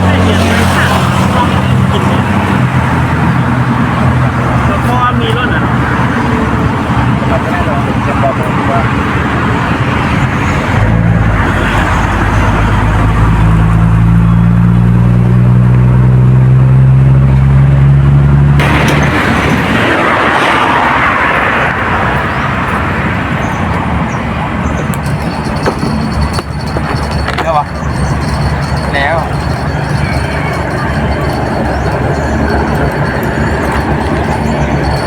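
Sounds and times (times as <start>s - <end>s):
large engine droning: 0.0s - 35.0s
steady rushing noise: 18.6s - 35.0s.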